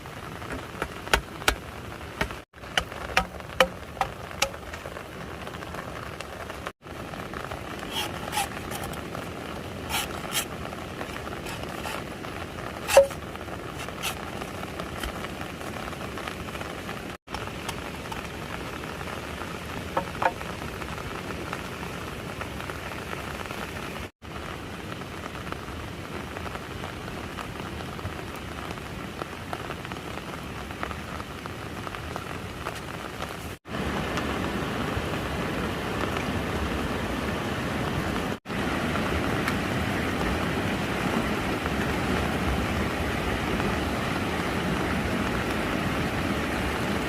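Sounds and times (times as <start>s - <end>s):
steady rain: 0.0s - 47.0s
sharp taps and drips: 0.4s - 5.0s, 19.9s - 20.6s.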